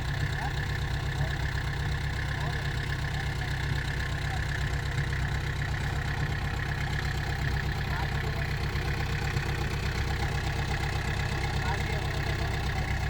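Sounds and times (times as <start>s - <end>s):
diesel engine rumbling: 0.0s - 13.0s.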